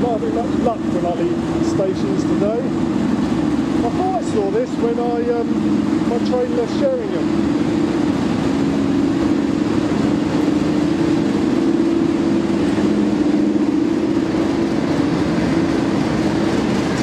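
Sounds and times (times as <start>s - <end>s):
locomotive diesel engine humming: 0.0s - 17.0s.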